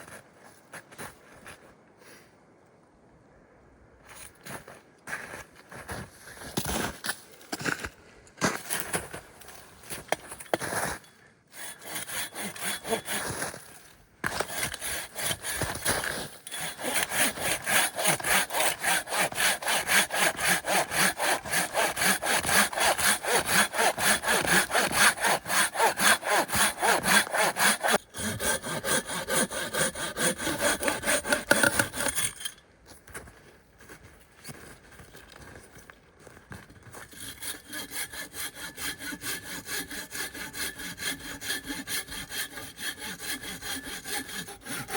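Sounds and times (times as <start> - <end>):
hand saw cutting wood: 10.5 - 32.5, 36.9 - 44.9.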